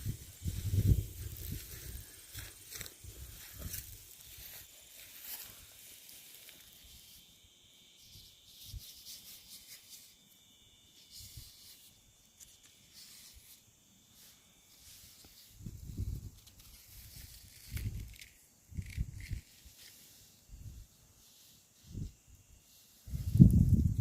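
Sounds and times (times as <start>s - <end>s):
footsteps crunching through dry leaves: 0.0s - 7.2s
high insect drone: 0.0s - 24.0s.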